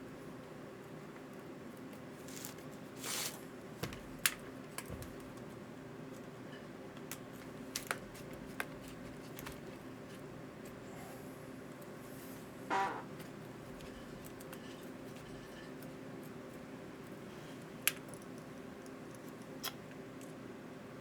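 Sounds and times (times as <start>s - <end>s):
small clicks and taps of parts: 17.8s - 20.3s.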